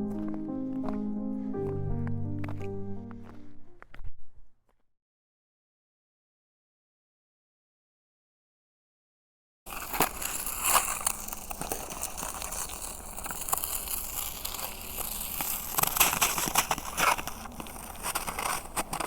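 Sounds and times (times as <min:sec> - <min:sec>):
footsteps crunching on snow: 0:00.0 - 0:04.4, 0:09.7 - 0:19.0.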